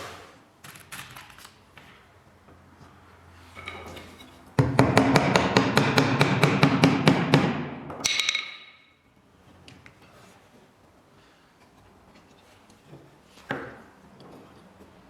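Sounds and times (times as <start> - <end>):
hand tool knocking on wood: 4.6 - 8.5.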